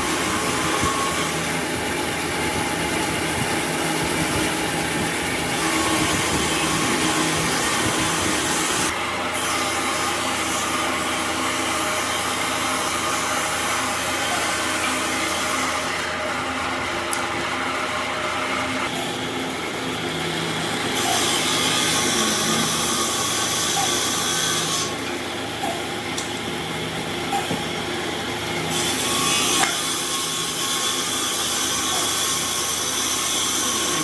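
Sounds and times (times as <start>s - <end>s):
power tool working wood: 0.0s - 34.0s.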